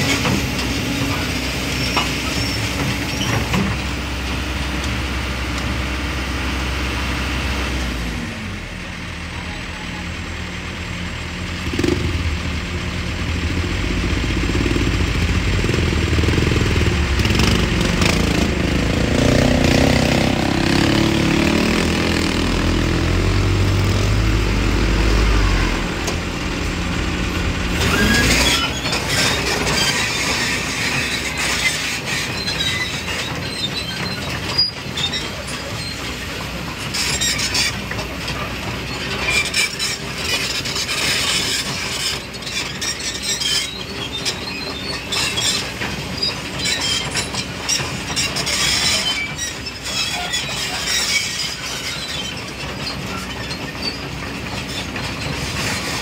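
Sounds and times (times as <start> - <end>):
excavator diesel engine working: 0.0 - 56.0
hissing rattling clatter: 11.6 - 56.0.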